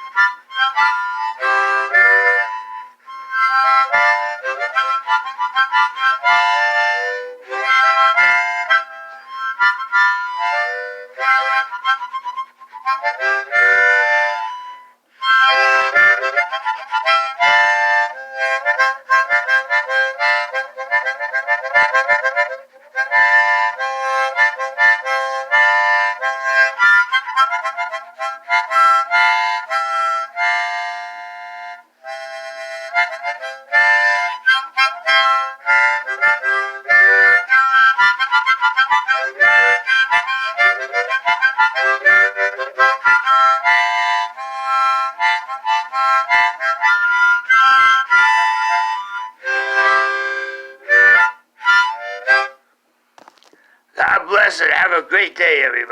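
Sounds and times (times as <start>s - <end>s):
harmonica playing: 0.0s - 55.9s
breaths: 52.6s - 53.9s.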